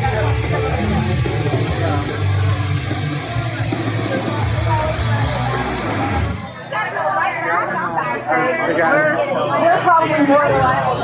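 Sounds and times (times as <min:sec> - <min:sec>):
loud rock music: 0:00.0 - 0:06.7.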